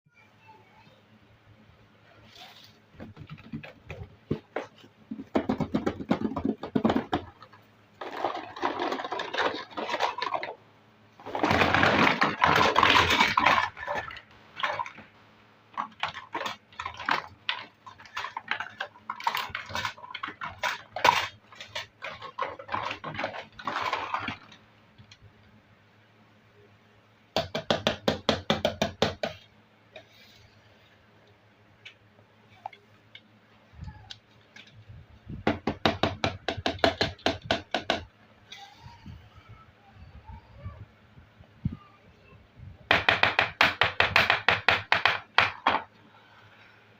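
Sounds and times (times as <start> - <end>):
plastic pieces clicking and rattling: 5.2 - 10.6, 11.2 - 15.1, 15.7 - 25.2.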